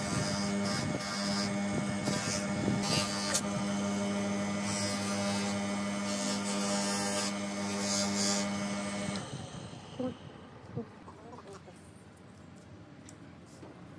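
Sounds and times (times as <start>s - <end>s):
power tool motor humming: 0.0s - 10.2s.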